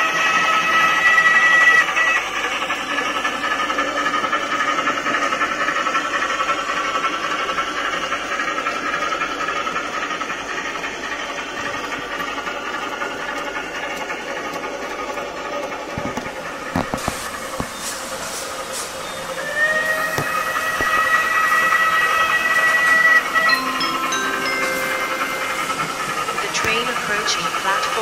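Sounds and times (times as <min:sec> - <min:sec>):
goods train rumbling past: 0:00.0 - 0:28.0
high steady tone: 0:21.8 - 0:28.0.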